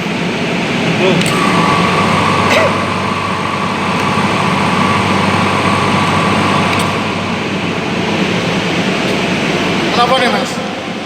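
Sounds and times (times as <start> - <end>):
faint high whine: 1.3 - 9.9.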